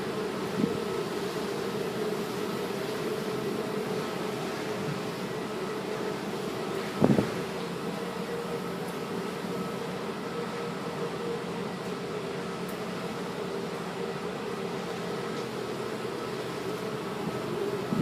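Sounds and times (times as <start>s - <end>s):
ship machinery drone: 0.0s - 18.0s.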